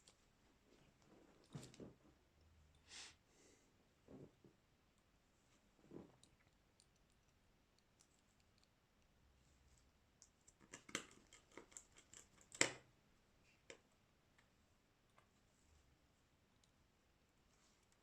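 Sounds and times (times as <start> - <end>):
small sharp clicks and taps: 9.8 - 12.9.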